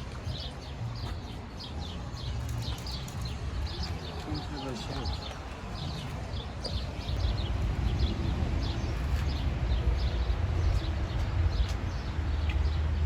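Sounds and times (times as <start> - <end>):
small birds chirping: 0.0 - 13.0
steady low rumble: 5.2 - 13.0.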